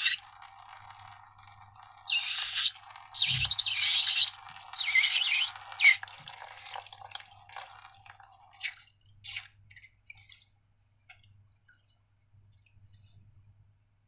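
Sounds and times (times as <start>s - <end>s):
wet slime squelching: 2.1s - 13.2s.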